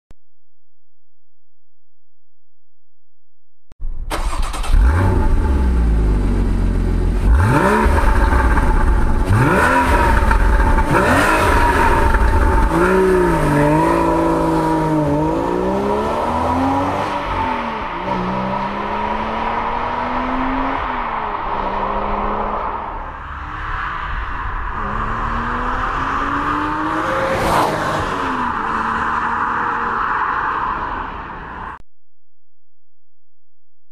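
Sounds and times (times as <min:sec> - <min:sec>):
sports car engine revving: 0:04.2 - 0:20.8.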